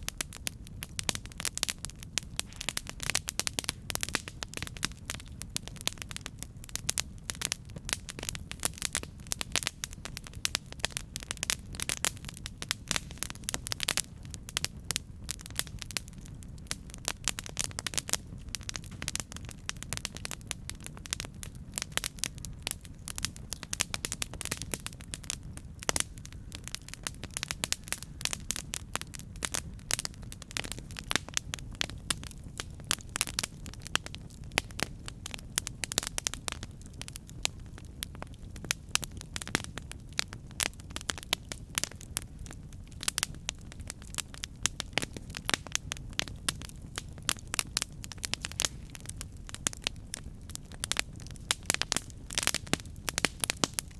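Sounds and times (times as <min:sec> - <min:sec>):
flames rumbling: 0:00.0 - 0:53.9
wood crackling and popping: 0:00.0 - 0:53.9.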